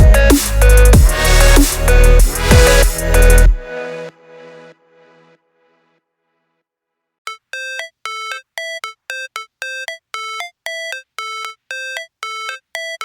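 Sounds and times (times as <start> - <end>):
electronic beeping melody: 7.3 - 13.0.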